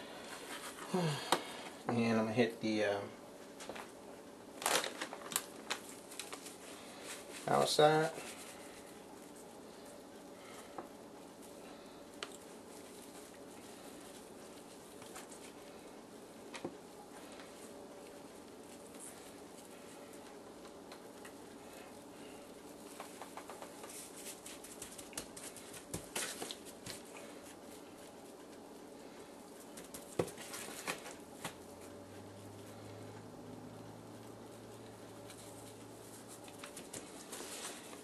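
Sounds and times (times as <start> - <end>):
faint steady hum: 0.0 - 38.0
dry rub pattering on chicken: 12.2 - 32.6, 34.1 - 38.0.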